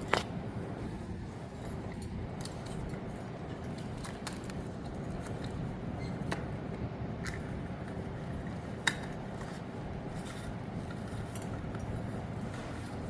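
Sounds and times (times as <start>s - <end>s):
steady low rumble: 0.0s - 13.0s
metal cage parts clicking: 1.8s - 6.5s.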